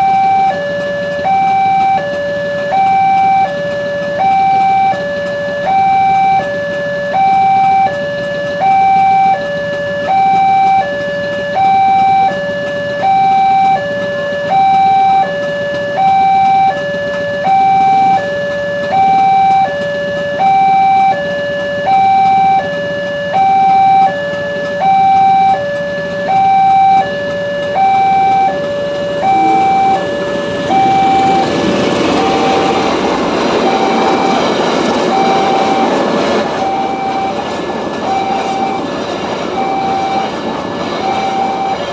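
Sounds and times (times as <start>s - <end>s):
approaching train: 0.0s - 41.9s
level crossing two-tone alarm: 0.0s - 41.9s.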